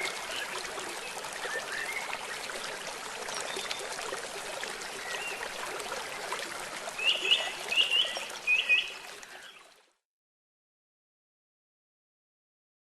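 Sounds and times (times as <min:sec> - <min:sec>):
running water: 0:00.0 - 0:10.0.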